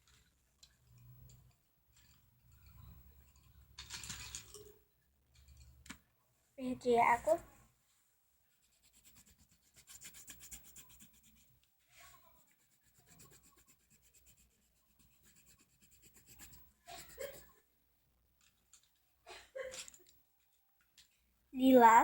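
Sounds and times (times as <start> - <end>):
felt-tip pen scratching on paper: 8.6 - 11.6, 12.3 - 17.5.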